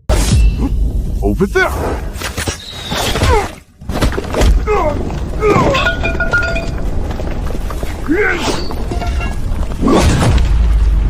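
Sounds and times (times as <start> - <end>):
crashing and thudding impacts: 3.1 - 11.0.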